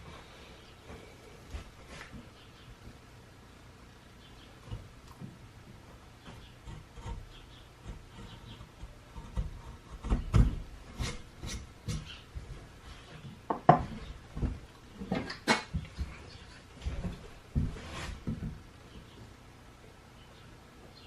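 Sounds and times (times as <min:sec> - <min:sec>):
wood scraping: 0:06.2 - 0:18.6
wood knocking: 0:13.5 - 0:16.2.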